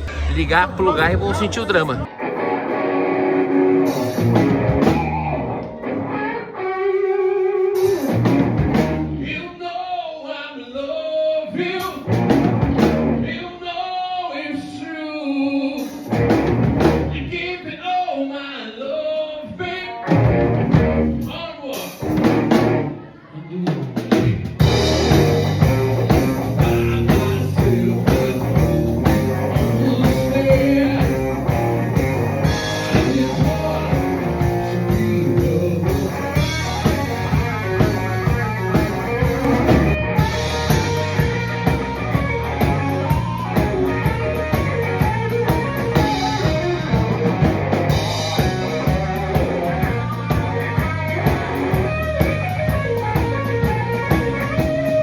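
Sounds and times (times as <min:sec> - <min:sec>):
overdriven electric guitar: 0:01.9 - 0:09.3, 0:15.6 - 0:17.2, 0:19.9 - 0:21.3, 0:24.6 - 0:55.0
steady drum beat: 0:23.9 - 0:55.0.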